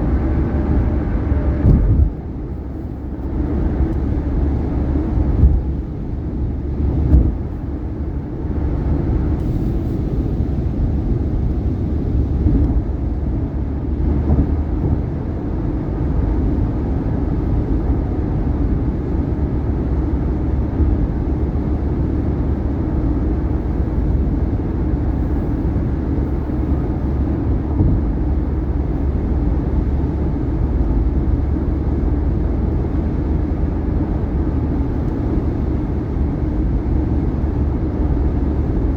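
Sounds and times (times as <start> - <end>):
tyre and road noise: 0.0 - 10.2.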